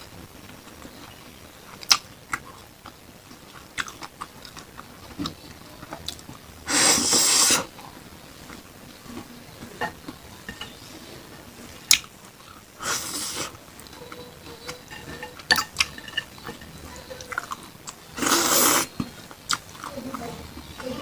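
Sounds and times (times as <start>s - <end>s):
chewing: 1.7s - 6.5s, 11.8s - 21.0s.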